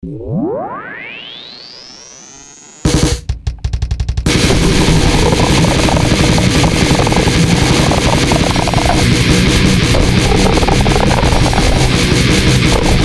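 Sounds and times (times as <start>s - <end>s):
electronic sweep: 0.0s - 3.2s, 4.3s - 13.0s
fast drumming and distortion: 2.9s - 13.0s
stop-start drum hits: 2.9s - 13.0s.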